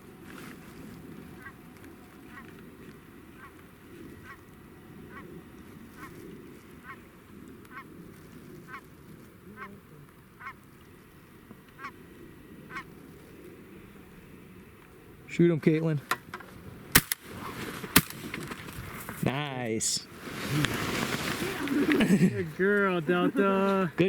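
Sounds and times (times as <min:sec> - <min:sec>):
goose honking: 0:01.4 - 0:01.6, 0:02.2 - 0:02.6, 0:03.3 - 0:03.6, 0:04.2 - 0:06.2, 0:09.5 - 0:10.6, 0:11.8 - 0:12.0, 0:12.6 - 0:12.9.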